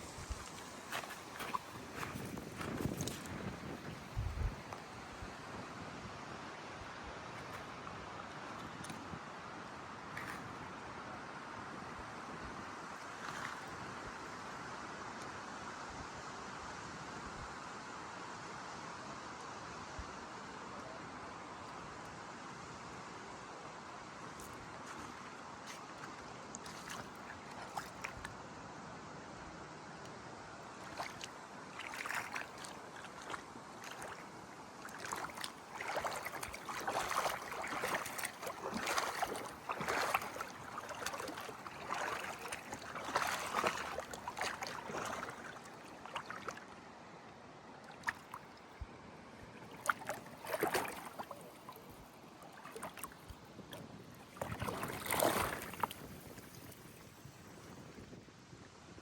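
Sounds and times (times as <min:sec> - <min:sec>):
lake water lapping: 0:00.0 - 0:05.5, 0:12.9 - 0:13.8, 0:24.4 - 0:28.4, 0:30.6 - 0:46.9, 0:47.7 - 0:57.8.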